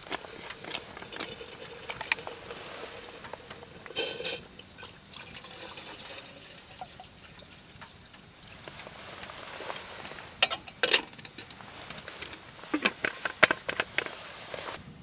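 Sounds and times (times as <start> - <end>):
rushing hiss: 0.0 - 4.6
wood stove fire crackling: 0.0 - 15.0.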